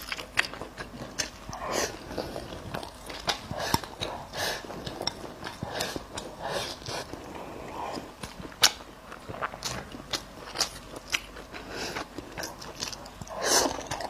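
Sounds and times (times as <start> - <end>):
person chewing meat: 0.0 - 14.0.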